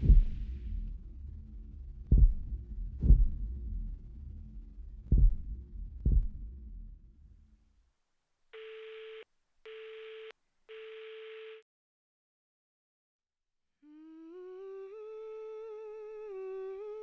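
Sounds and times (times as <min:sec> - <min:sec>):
low heartbeat-like thuds: 0:00.0 - 0:07.0
low rumble: 0:00.0 - 0:07.6
telephone busy tone: 0:08.6 - 0:11.6.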